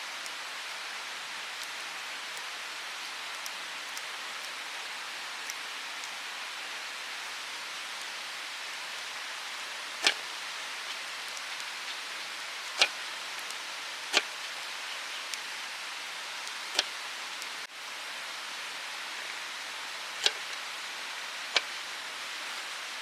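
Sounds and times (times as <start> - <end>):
mountain stream rushing: 0.0 - 17.7
sharp pops: 0.1 - 17.7.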